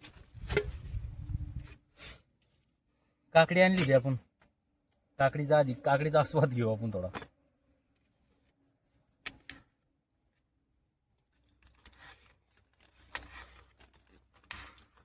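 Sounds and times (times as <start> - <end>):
brief scraping rustles: 0.0 - 2.2, 11.7 - 15.0.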